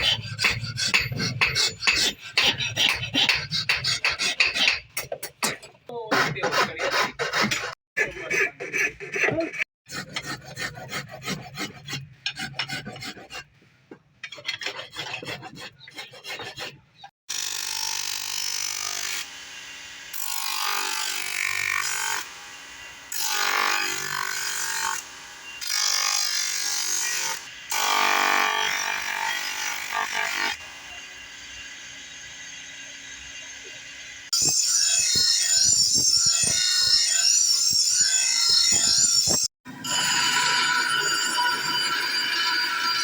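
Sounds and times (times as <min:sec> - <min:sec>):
file rasping on metal: 0:00.0 - 0:13.6, 0:14.2 - 0:17.1.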